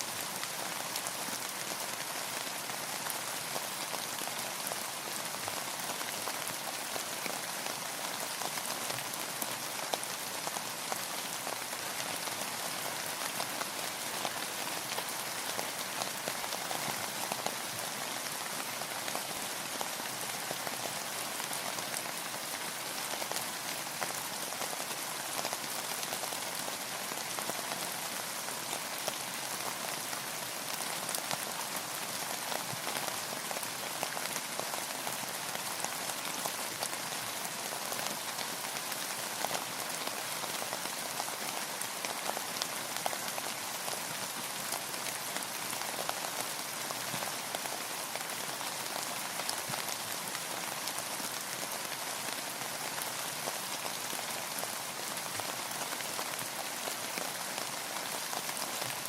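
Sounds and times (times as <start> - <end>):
rain drops pattering: 0.0 - 59.0.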